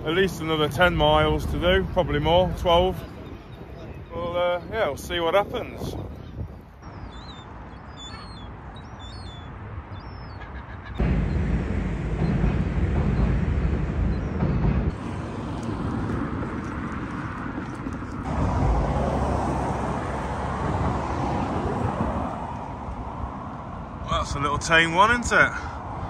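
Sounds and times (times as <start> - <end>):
road traffic noise: 0.0 - 26.0
train crossing steel bridge: 0.0 - 26.0.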